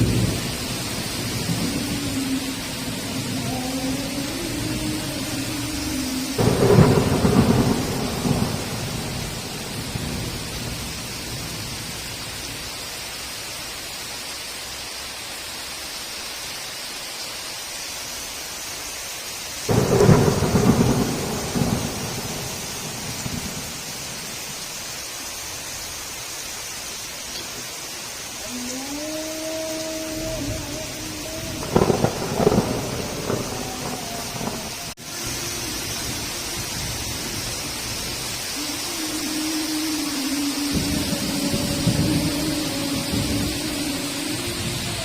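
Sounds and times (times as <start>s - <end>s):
thunder rumbling: 0.0s - 12.4s, 19.7s - 24.7s, 28.4s - 45.0s
heavy rain falling: 0.0s - 45.0s.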